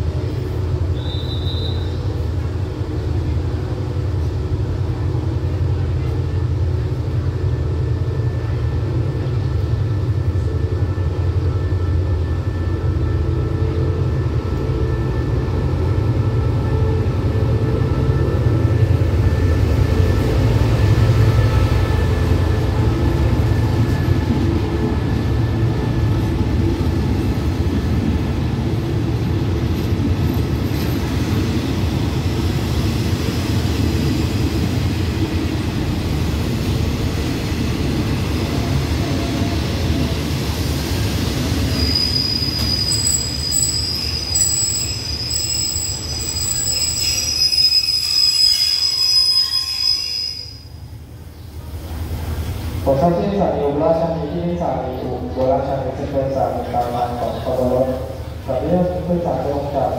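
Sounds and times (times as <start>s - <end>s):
train rumbling: 0.0s - 59.9s
high-pitched metallic squeal: 41.8s - 50.7s.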